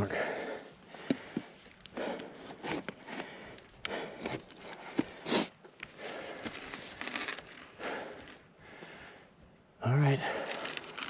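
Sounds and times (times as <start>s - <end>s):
person breathing hard: 0.1s - 6.6s, 7.8s - 9.4s.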